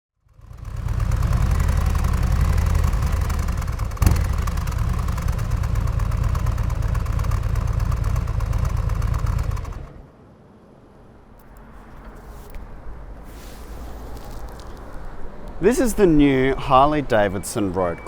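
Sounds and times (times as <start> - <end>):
motorcycle engine idling: 0.2 - 10.0
engine pop: 0.7 - 10.0.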